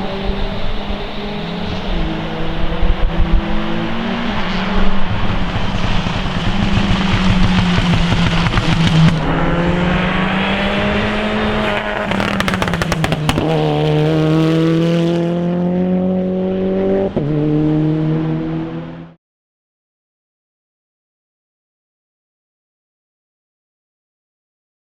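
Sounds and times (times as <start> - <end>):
car engine accelerating hard: 0.0 - 19.2
exhaust sharp cracks: 5.0 - 9.5, 11.8 - 14.0.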